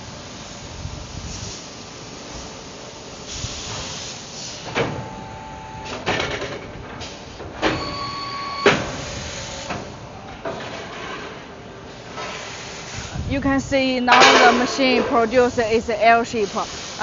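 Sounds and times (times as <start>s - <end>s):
factory machine noise: 0.0s - 17.0s
metal clanks: 14.1s - 15.3s.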